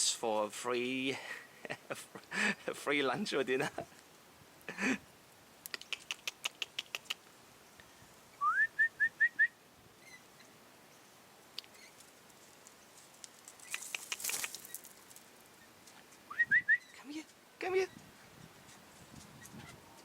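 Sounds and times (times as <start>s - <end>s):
sharp clicks: 5.6s - 7.2s, 13.2s - 14.9s
whistled call: 8.4s - 9.6s, 16.3s - 17.0s.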